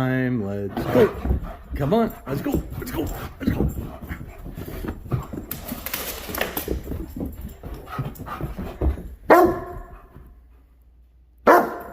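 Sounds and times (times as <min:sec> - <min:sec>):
puppy barking: 0:09.3 - 0:09.9, 0:11.5 - 0:11.9.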